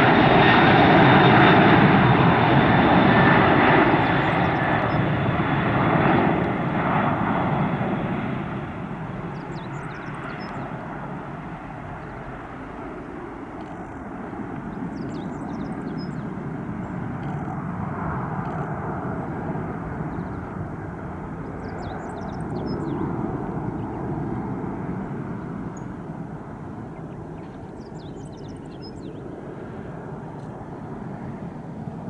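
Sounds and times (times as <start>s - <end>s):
distant jet engines roaring: 0.0s - 32.0s
small birds chirping: 3.7s - 5.2s, 9.2s - 11.0s, 11.6s - 12.8s, 13.6s - 17.6s, 19.9s - 20.6s, 21.4s - 24.2s, 26.9s - 29.7s.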